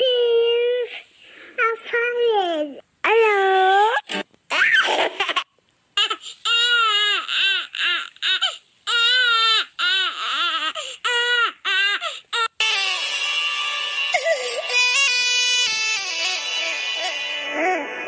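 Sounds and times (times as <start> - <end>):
high-pitched crying wails: 6.0 - 18.0.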